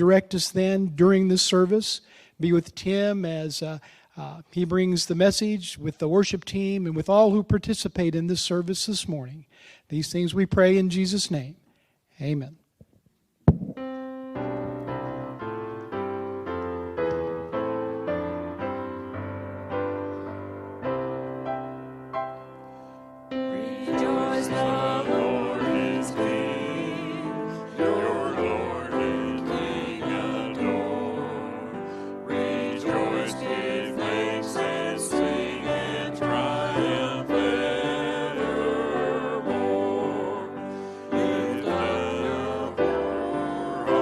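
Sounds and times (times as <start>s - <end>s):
keyboard accompaniment: 13.5s - 44.0s
voices singing a hymn: 23.4s - 44.0s.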